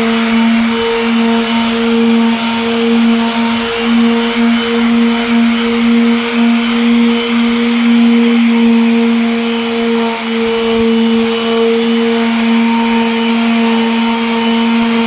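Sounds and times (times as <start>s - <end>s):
electric sander running: 0.0s - 15.0s.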